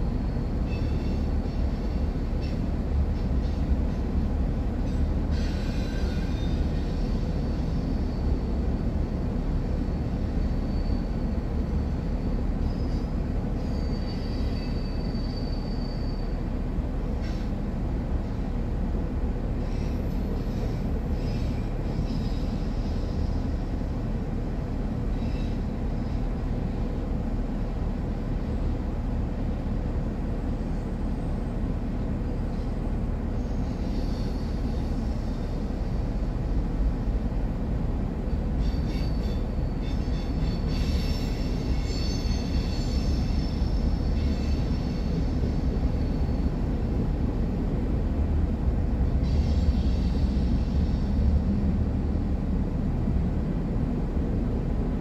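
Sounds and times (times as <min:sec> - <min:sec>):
train wheels rumbling over rails: 0:00.0 - 0:55.0
high-pitched wheel squeals: 0:12.6 - 0:16.4, 0:38.6 - 0:46.5.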